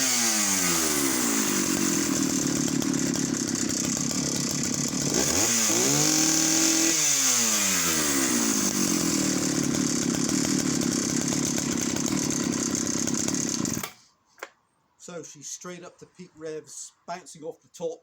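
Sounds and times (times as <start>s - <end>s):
chainsaw engine idling and revving: 0.0s - 14.0s.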